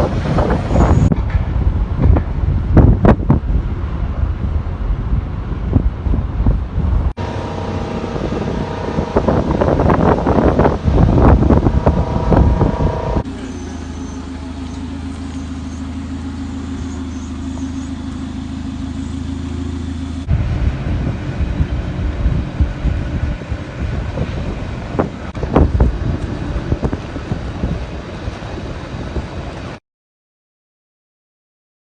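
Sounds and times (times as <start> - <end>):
wind buffeting microphone: 0.0 - 13.3, 20.3 - 29.8
steady engine hum: 0.0 - 29.8.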